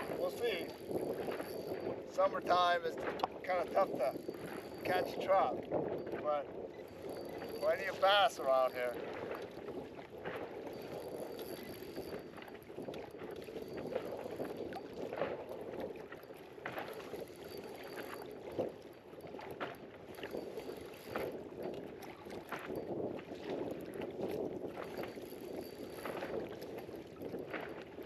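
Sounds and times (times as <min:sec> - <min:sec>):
waves lapping against boat: 0:00.0 - 0:28.0
wind: 0:00.0 - 0:28.0.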